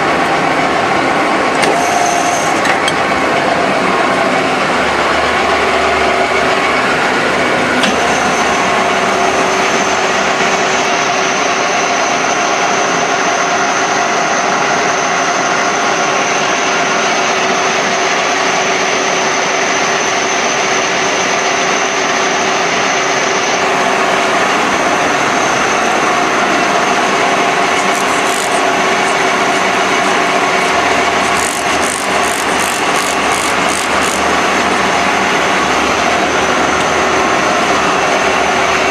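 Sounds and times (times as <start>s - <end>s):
machine tool grinding with whine: 0.0s - 12.2s, 23.8s - 38.9s
rapid clicks: 27.7s - 34.3s.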